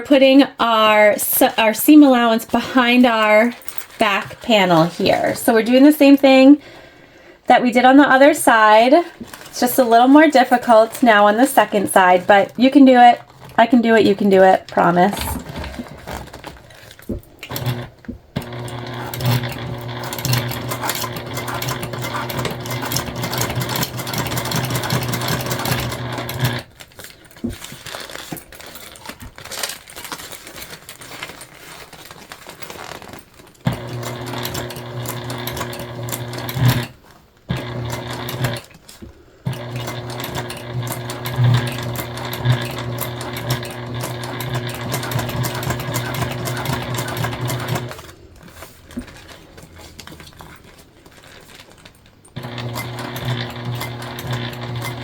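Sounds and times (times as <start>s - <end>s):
sewing machine stitching: 9.0s - 26.8s, 32.6s - 38.8s, 39.4s - 55.0s.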